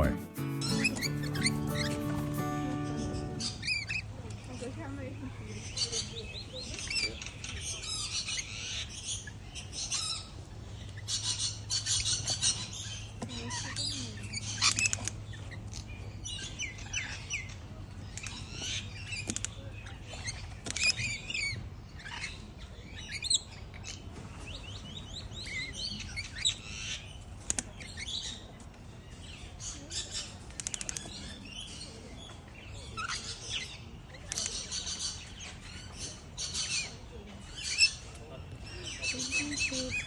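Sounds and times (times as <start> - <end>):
birds chirping and chattering: 0.0 - 3.6.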